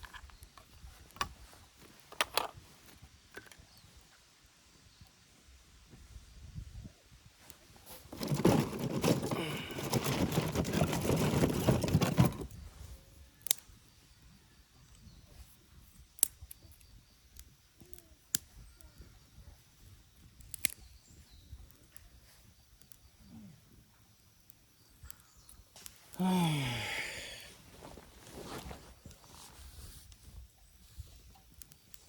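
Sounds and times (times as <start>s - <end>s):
crinkling and rustling: 7.4s - 12.7s, 27.7s - 30.4s.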